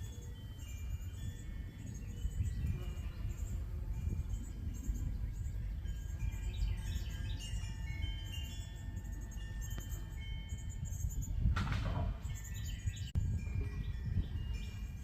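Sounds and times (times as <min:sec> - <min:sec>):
birds chirping: 0:00.0 - 0:15.0
wind on microphone: 0:00.0 - 0:15.0
ringing chime tones: 0:04.0 - 0:11.4.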